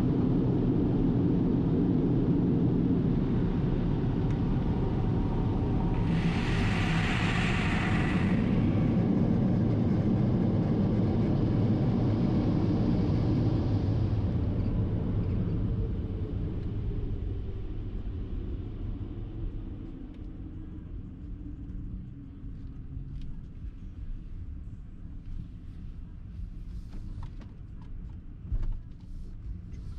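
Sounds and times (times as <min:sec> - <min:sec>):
car wash machinery rumbling: 0:05.9 - 0:09.2
burst of hiss: 0:06.0 - 0:09.0.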